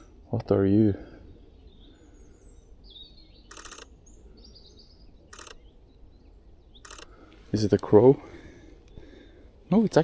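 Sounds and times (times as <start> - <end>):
small birds chirping: 0.0 - 10.0
rapid camera shutter clicks: 3.5 - 3.9, 5.3 - 5.6, 6.8 - 7.2.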